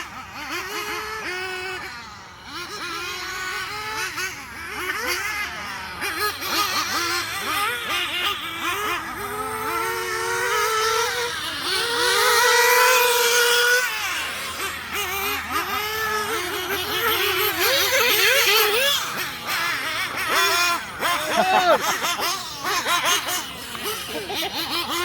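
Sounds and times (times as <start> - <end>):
nitro engine revving: 0.0 - 25.0.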